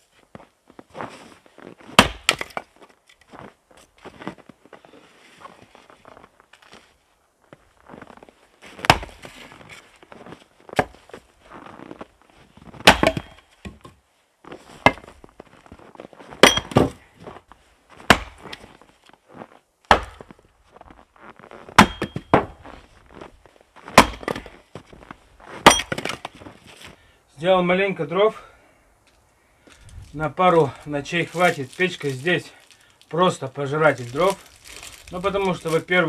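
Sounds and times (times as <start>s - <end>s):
axe chopping wood: 1.9s - 2.7s, 8.7s - 9.6s, 10.7s - 11.2s, 12.8s - 14.0s, 14.8s - 15.2s, 16.4s - 17.0s, 18.0s - 18.7s, 19.9s - 20.4s, 21.7s - 22.8s, 23.8s - 24.6s, 25.5s - 26.4s, 30.7s - 36.0s
wood cracking apart: 29.7s - 36.0s.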